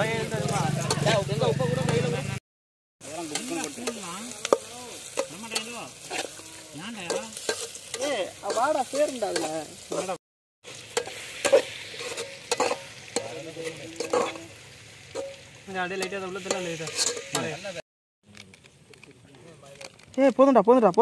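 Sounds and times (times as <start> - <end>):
onions sizzling in oil: 0.0 - 2.0, 3.0 - 17.8
spatula scraping a pot: 3.3 - 10.2, 10.8 - 14.5, 16.0 - 17.5.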